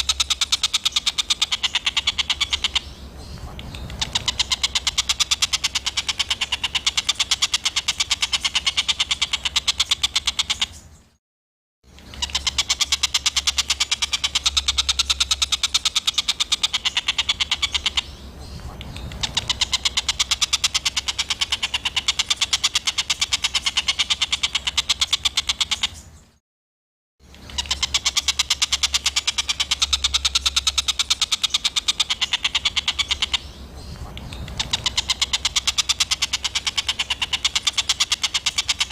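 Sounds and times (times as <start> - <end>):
songbird giving harsh rasping calls: 0.0 - 10.9, 11.9 - 26.1, 27.3 - 38.9.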